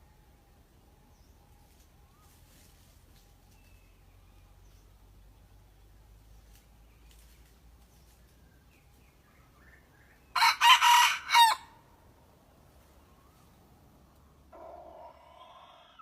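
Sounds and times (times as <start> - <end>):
young rooster crowing: 10.3 - 11.8.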